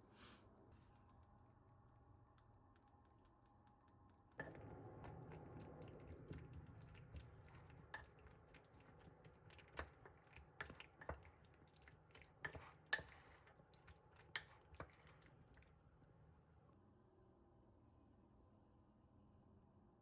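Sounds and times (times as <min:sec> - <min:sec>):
utensils tapping dishes: 0:04.4 - 0:15.7
quiet chewing: 0:04.4 - 0:16.2.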